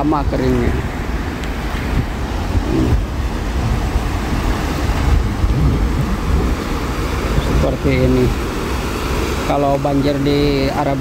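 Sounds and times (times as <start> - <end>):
cars driving through water: 0.0 - 11.0
wind buffeting microphone: 0.0 - 11.0.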